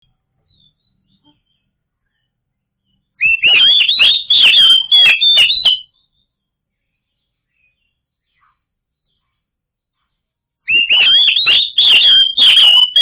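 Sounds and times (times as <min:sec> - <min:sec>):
bird singing whistled notes: 0:00.5 - 0:06.4, 0:10.7 - 0:13.0.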